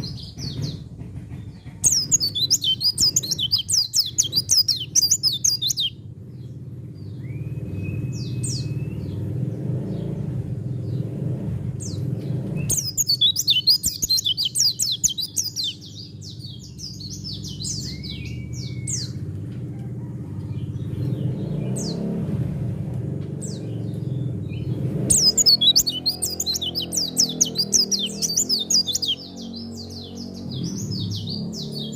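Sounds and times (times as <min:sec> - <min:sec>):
bird twittering: 0:01.5 - 0:09.2, 0:12.6 - 0:19.2, 0:23.5 - 0:31.9
bird whistles: 0:01.8 - 0:06.0, 0:12.6 - 0:15.9, 0:25.1 - 0:29.6.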